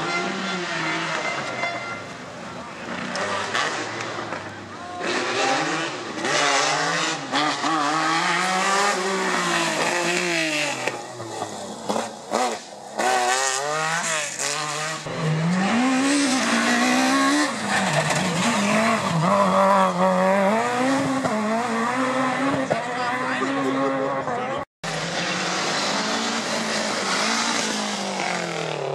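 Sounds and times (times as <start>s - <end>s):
rally car engine revving: 2.8s - 28.9s.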